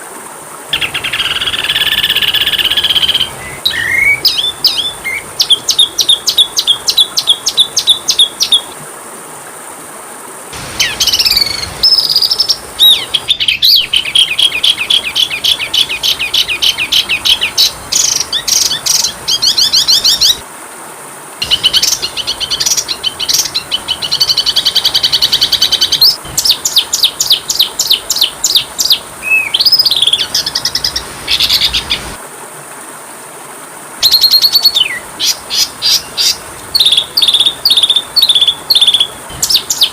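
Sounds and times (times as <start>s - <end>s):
steady high-pitched hiss: 0.0s - 39.9s
songbird trills and whistles: 0.8s - 8.6s.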